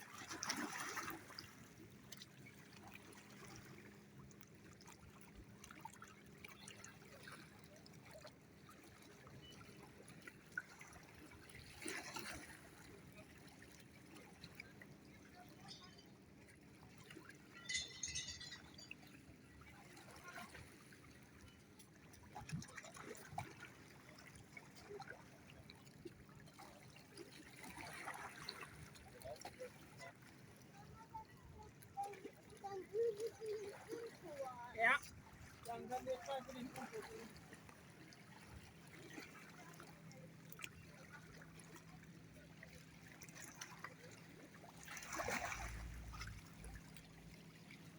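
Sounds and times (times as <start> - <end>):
rush of water: 0.0 - 16.1, 17.0 - 19.1, 22.0 - 47.9
lake water lapping: 0.0 - 47.9
small splashy ticks: 0.2 - 3.6, 40.5 - 41.8, 44.8 - 47.1.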